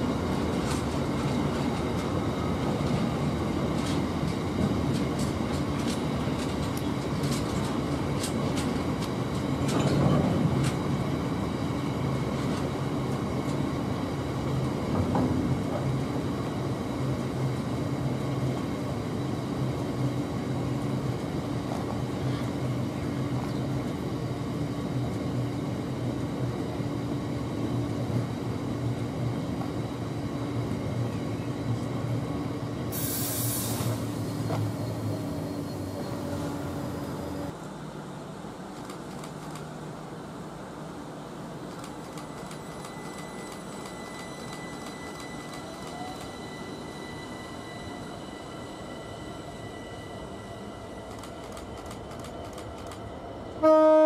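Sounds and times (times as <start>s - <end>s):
freight train wheels rumbling: 0.0s - 54.0s
brief hiss: 33.0s - 34.3s.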